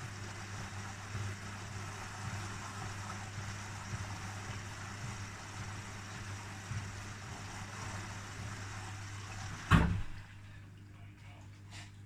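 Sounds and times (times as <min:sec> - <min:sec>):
washing machine humming: 0:00.0 - 0:12.0
loud clunk: 0:09.7 - 0:10.2.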